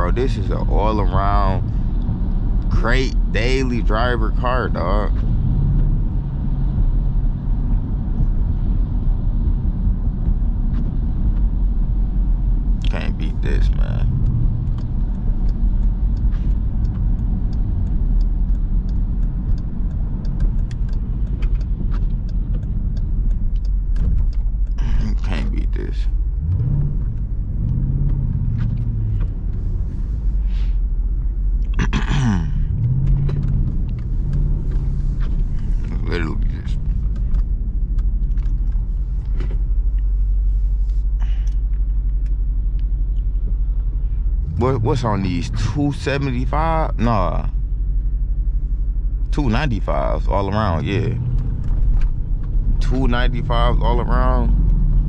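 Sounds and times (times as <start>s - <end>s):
car engine low rumble in cabin: 0.0s - 55.0s
road noise: 0.0s - 55.0s
light ticks: 12.8s - 29.8s.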